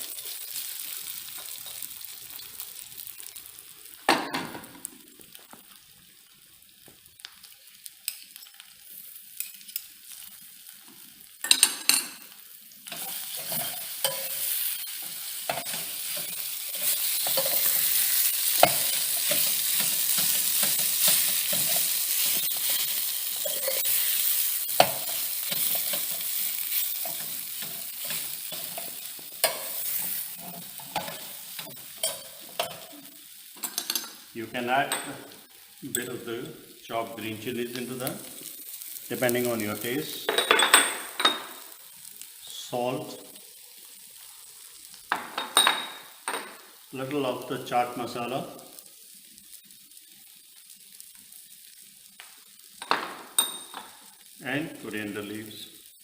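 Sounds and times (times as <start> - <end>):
food sizzling in oil: 0.0 - 56.0
spoon scraping a pan: 11.4 - 34.2.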